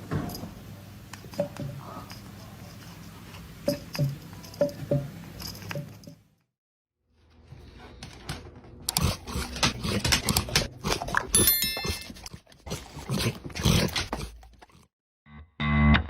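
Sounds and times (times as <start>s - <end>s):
bell-like ring: 11.4s - 12.1s.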